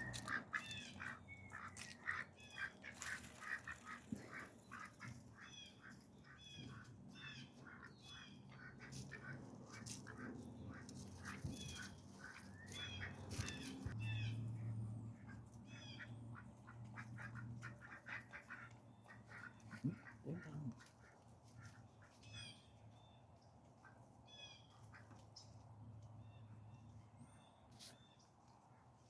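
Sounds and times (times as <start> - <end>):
small birds chirping: 0.0 - 9.2, 9.8 - 14.4
ducks quacking: 0.0 - 14.0, 15.1 - 22.2
ducks feeding: 0.0 - 23.0, 23.6 - 25.7.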